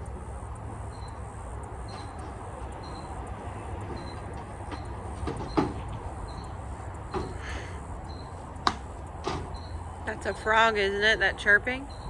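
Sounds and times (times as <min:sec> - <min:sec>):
sharp knocks: 0:03.9 - 0:06.0, 0:07.1 - 0:07.5, 0:08.6 - 0:09.7.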